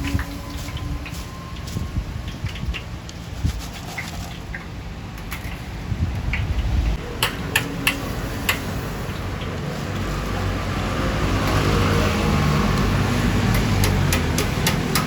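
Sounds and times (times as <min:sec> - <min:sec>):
vehicle engine approaching: 0:06.6 - 0:14.3.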